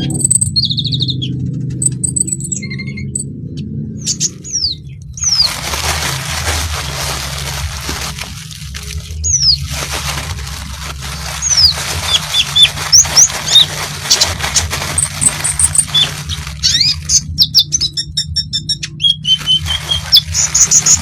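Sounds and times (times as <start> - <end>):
bird singing high chirps: 0.0 - 3.3, 4.0 - 5.5, 15.8 - 21.0
steady low hum: 0.0 - 21.0.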